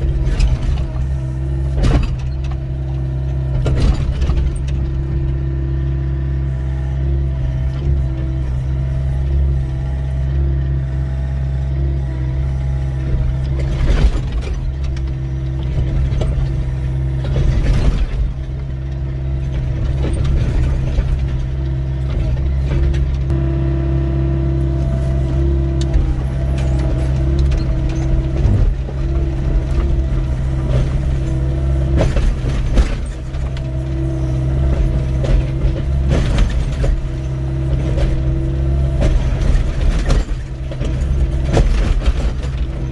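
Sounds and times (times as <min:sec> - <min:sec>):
diesel engine running under load: 0:00.0 - 0:42.9
hydraulics whining: 0:00.0 - 0:42.9
bucket clanking and scraping rock: 0:24.6 - 0:42.9.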